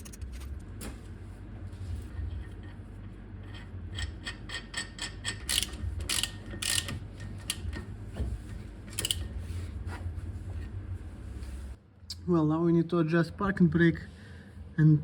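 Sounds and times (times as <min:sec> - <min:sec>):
tools rattling and scraping metal: 0:02.1 - 0:09.4
ratchet clicking: 0:03.9 - 0:07.8, 0:08.9 - 0:09.3.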